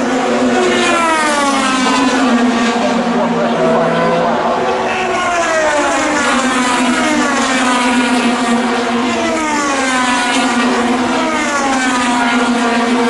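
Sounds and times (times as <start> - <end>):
race car engine steady: 0.0 - 13.0
race cars passing by: 0.0 - 13.0.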